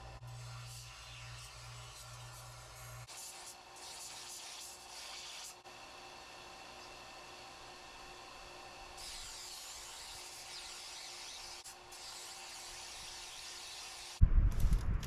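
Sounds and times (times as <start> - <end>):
steel grinding on sanding belt: 0.0 - 5.6, 8.9 - 14.2
loud low rumble with knocks: 14.2 - 15.0.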